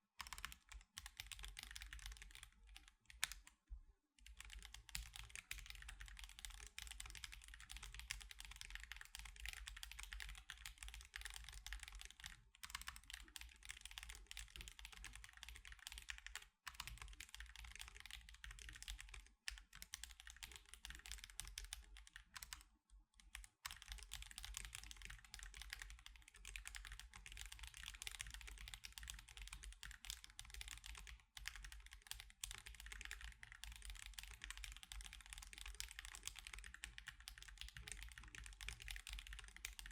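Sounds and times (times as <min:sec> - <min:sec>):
mechanical keyboard typing: 0:00.2 - 0:03.4, 0:04.2 - 0:22.6, 0:23.2 - 0:39.9.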